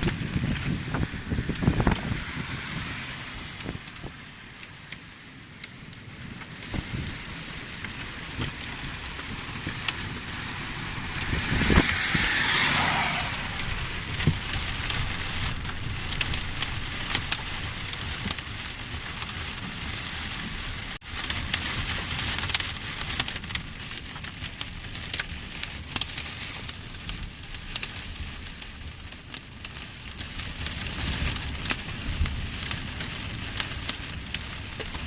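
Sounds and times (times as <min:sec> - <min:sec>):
heavy rain pouring: 0:00.0 - 0:35.0
raindrops ticking on hard surfaces: 0:00.0 - 0:35.0.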